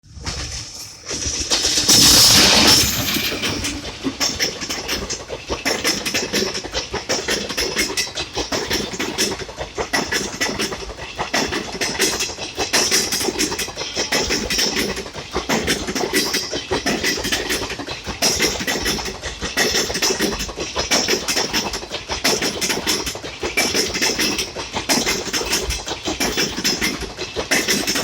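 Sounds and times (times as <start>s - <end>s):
train wheels clacking on rail joints: 0.1s - 28.0s
loud hissing rush: 1.2s - 5.8s.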